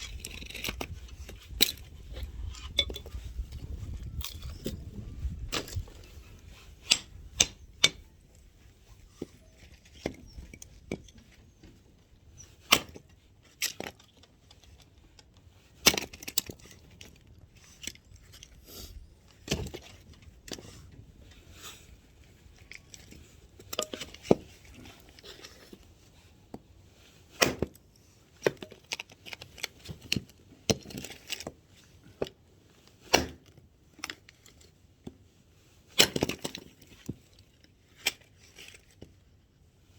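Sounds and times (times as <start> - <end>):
axe splitting firewood: 0.0 - 8.2, 12.3 - 14.0, 15.7 - 16.8, 19.4 - 22.0, 22.8 - 25.9, 27.3 - 27.8, 33.1 - 33.6.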